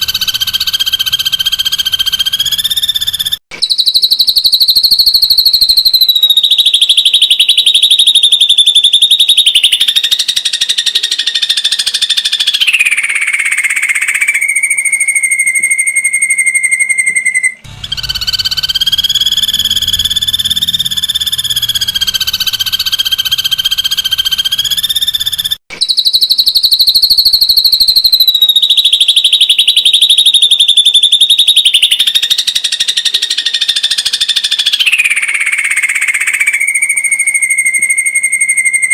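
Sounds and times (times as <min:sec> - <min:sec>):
bird giving fast trills: 0:00.0 - 0:27.2.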